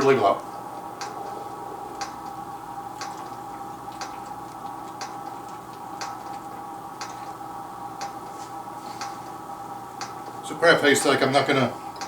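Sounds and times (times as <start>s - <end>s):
steady hum: 0.0s - 12.0s
clock ticking: 1.0s - 1.3s, 1.9s - 2.4s, 3.0s - 5.4s.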